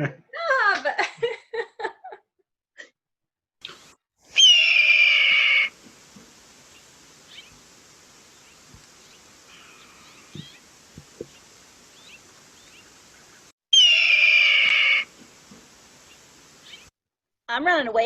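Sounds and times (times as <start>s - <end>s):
hawk screaming: 4.4s - 5.7s, 13.8s - 15.1s
faint bird chirps: 6.7s - 7.6s, 8.3s - 15.0s.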